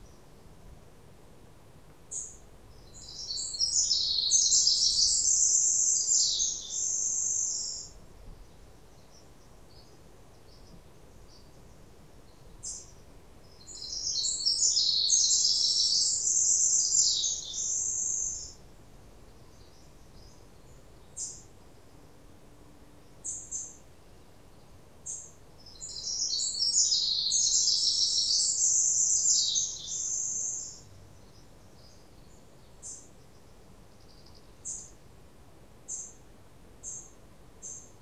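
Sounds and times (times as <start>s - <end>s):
songbird warbling: 2.9s - 7.9s, 13.6s - 18.6s, 25.1s - 30.8s.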